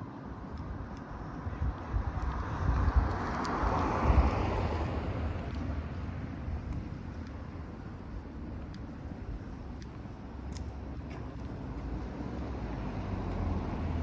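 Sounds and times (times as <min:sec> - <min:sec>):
car passing by: 0:02.6 - 0:05.6, 0:12.2 - 0:14.0.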